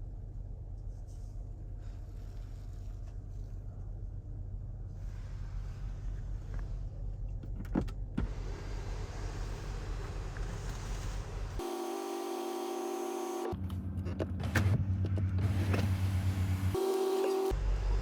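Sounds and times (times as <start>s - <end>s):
engine hum: 0.0s - 18.0s
electric whine: 11.6s - 13.6s.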